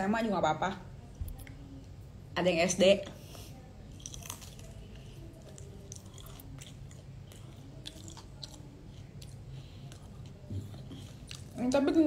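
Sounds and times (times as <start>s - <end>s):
person chewing crispy food: 3.8s - 11.6s.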